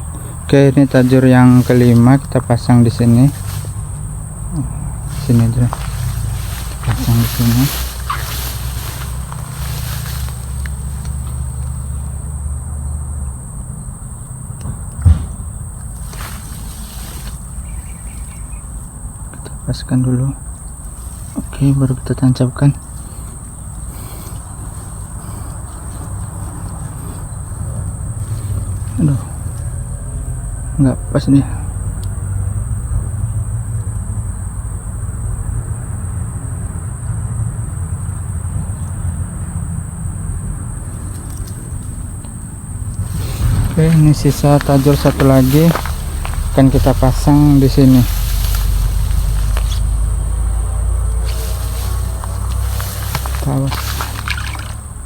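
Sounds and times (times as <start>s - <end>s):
steady low rumble: 0.0s - 12.5s, 40.2s - 55.0s
insects droning: 0.0s - 55.0s
loud thump: 15.0s - 15.6s.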